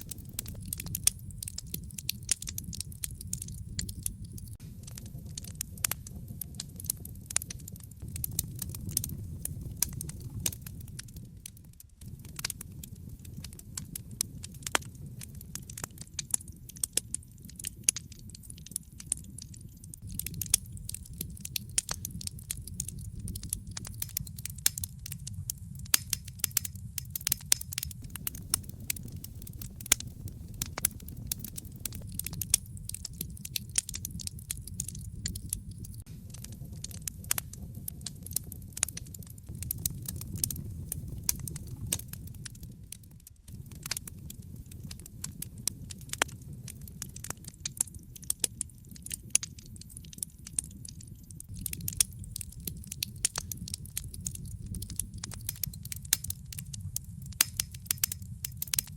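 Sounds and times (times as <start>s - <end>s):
fireplace fire crackling: 0.0s - 58.9s.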